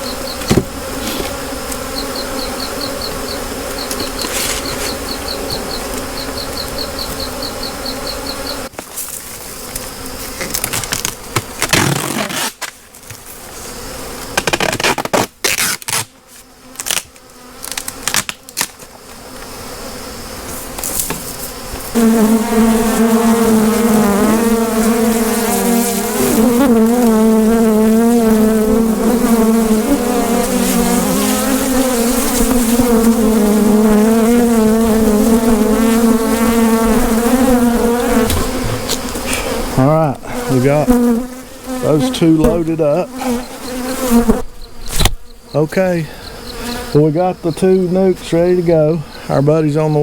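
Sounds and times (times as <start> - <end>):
bees buzzing: 0.0 - 12.3, 13.2 - 50.0
rustling and knocks: 38.2 - 39.2.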